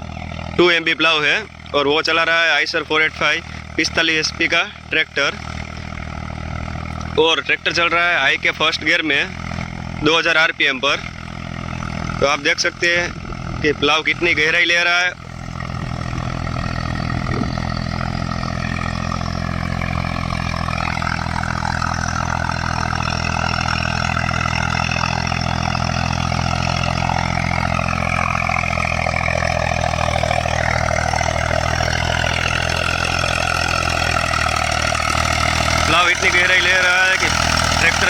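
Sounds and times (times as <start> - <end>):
tractor diesel engine under load: 0.0 - 38.0.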